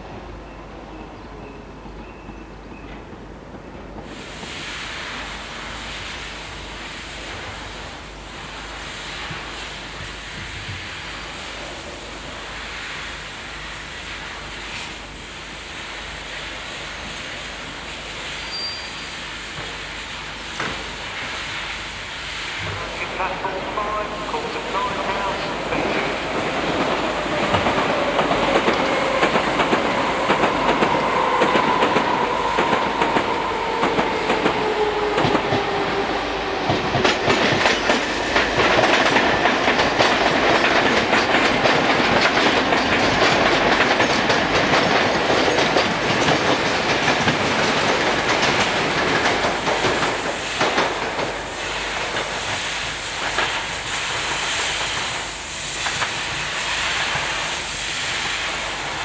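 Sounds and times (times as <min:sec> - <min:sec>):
train whine falling in pitch: 0:22.6 - 0:41.2.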